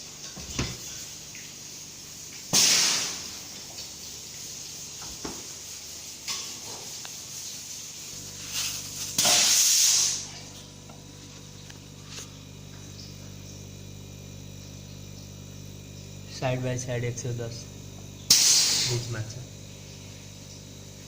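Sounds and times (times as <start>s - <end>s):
steady low hum: 0.0s - 21.0s
pressurised gas hissing: 2.5s - 3.5s, 4.4s - 10.5s, 18.3s - 19.3s.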